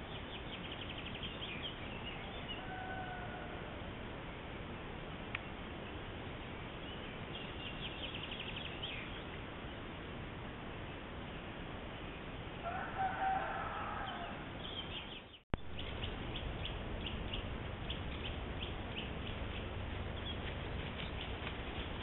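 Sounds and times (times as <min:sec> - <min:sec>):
steady low hiss: 0:00.0 - 0:22.0
drawn-out bird call: 0:01.0 - 0:03.8, 0:12.6 - 0:22.0.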